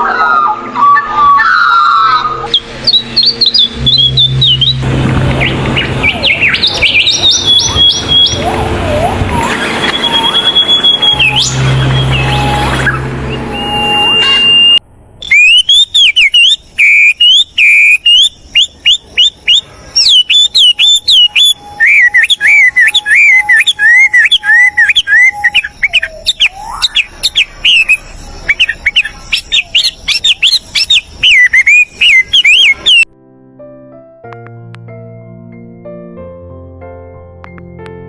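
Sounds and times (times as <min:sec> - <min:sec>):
songbird chirping: 0:00.0 - 0:33.1
low steady whistle: 0:09.4 - 0:33.1.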